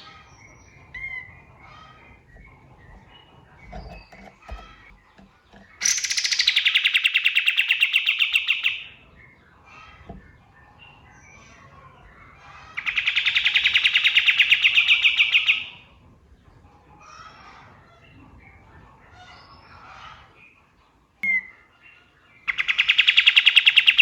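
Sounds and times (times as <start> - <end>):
songbird trilling: 0.0 - 9.4, 12.8 - 15.8, 22.5 - 24.0
faint bird chirps: 21.2 - 24.0.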